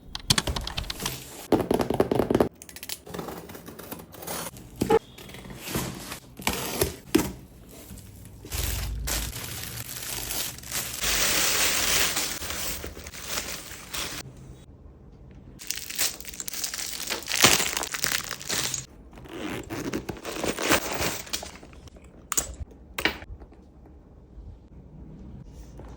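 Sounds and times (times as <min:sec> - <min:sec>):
packaging crinkling and tearing: 0:08.4 - 0:14.2, 0:15.6 - 0:18.9, 0:19.5 - 0:21.9.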